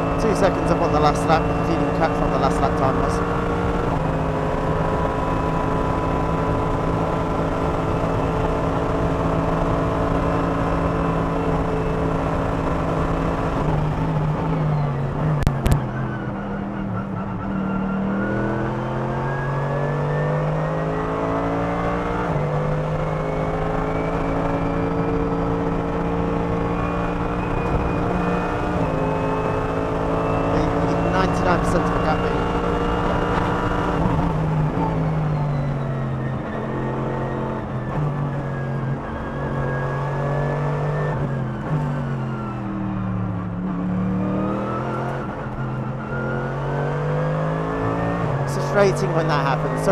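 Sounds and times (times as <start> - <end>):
race car engine revving: 0.0 - 14.4, 17.2 - 42.7.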